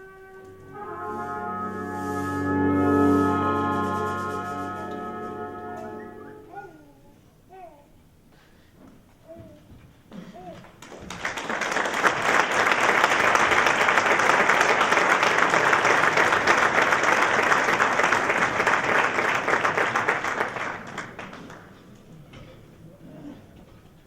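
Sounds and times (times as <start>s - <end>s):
audience applauding: 10.6s - 22.1s.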